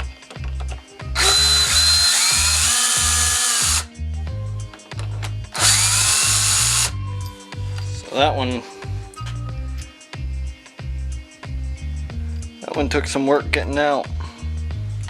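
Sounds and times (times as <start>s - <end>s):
background music with bass beat: 0.0s - 15.0s
power drill whining: 1.2s - 3.9s, 5.5s - 7.0s.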